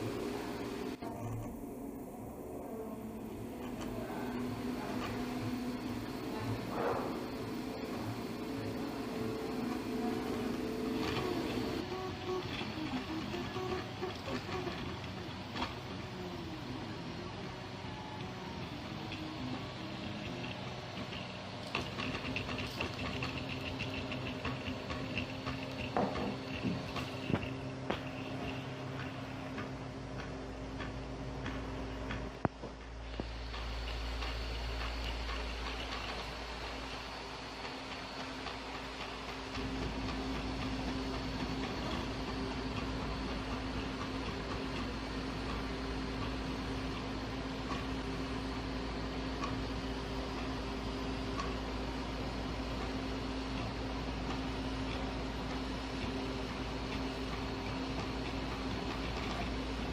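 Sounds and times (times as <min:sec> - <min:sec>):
printer stepper motors humming: 0:00.0 - 0:59.9.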